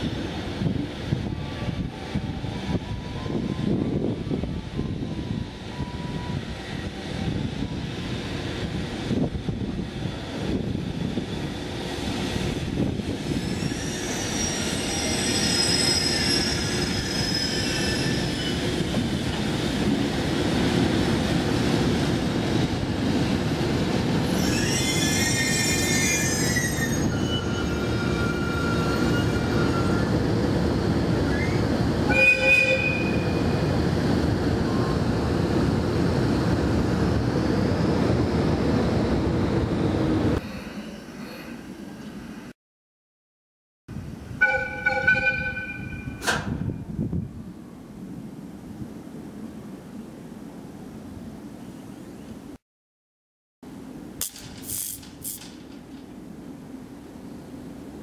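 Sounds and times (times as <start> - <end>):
wheel and brake squeals: 13.3 - 18.9, 24.3 - 30.2
train wheels and motors rumbling: 53.7 - 58.0.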